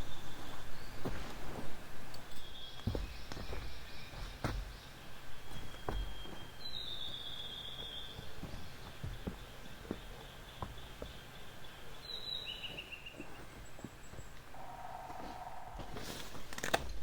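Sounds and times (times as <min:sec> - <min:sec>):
high bird call: 0:14.4 - 0:16.5.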